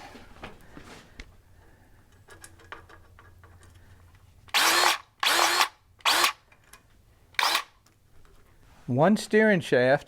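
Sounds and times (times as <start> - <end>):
grease gun motor whirring: 4.5 - 6.4, 7.4 - 7.7.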